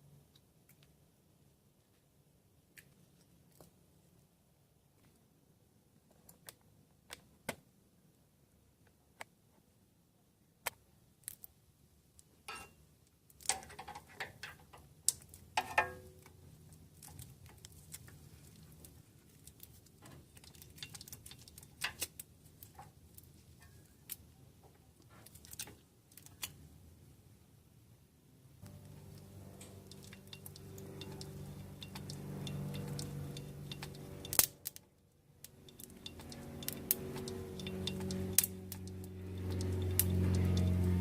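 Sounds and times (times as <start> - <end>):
faint low hum: 26.6 - 41.0
metallic clicks and knocks: 35.5 - 41.0.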